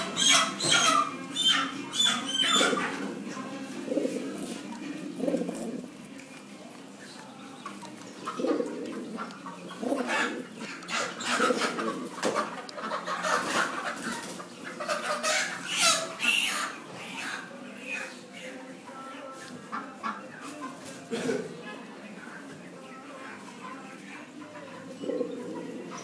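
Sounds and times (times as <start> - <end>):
fowl clucking: 0.0 - 3.2, 8.1 - 17.5
pigeon cooing: 0.0 - 6.4, 7.1 - 18.3, 24.2 - 26.0.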